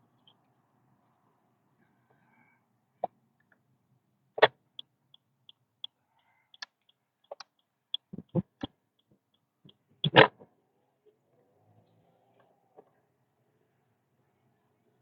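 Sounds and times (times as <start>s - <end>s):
faint regular ticking: 4.4s - 10.2s.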